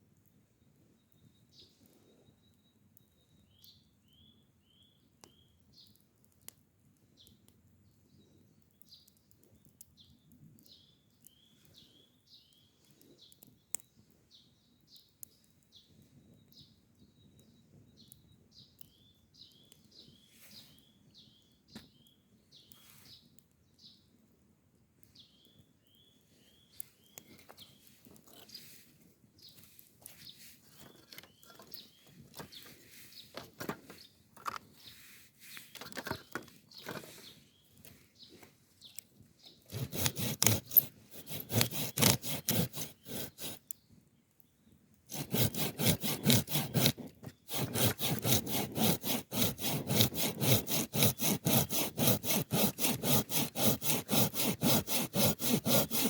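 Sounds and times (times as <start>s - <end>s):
faint bird chirps: 0.3s - 6.0s, 7.2s - 24.1s, 25.1s - 39.7s.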